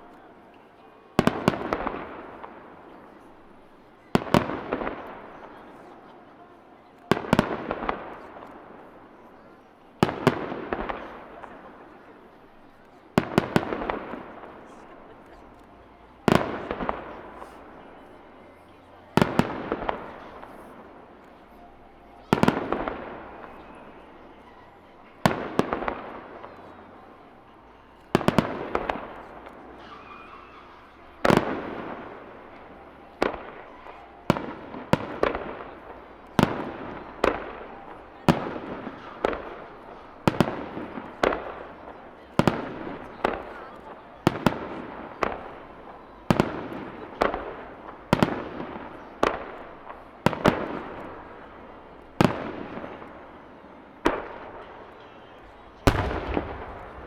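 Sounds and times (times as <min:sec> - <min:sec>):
firework shells bursting: 0:55.8 - 0:57.0.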